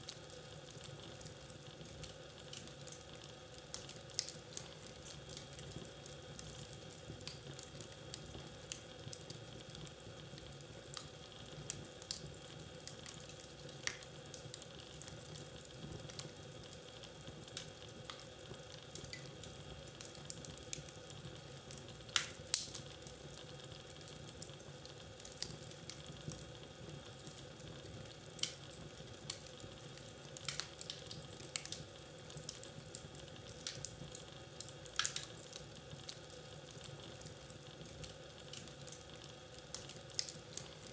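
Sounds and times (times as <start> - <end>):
low steady hiss: 0.0 - 40.9
wood fire crackling and popping: 0.0 - 40.9.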